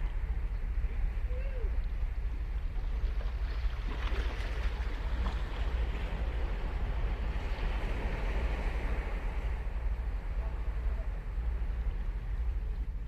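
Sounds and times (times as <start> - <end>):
steady low rumble: 0.0 - 13.0
ocean surf breaking: 2.9 - 12.6.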